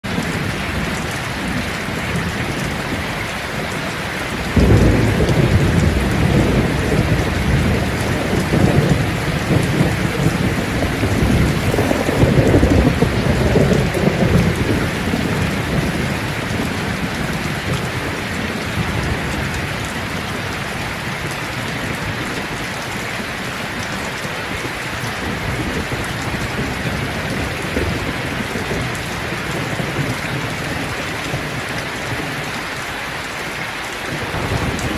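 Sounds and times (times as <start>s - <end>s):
rain falling on leaves: 0.0s - 34.9s
thunder rumbling: 0.1s - 22.7s, 34.0s - 34.9s.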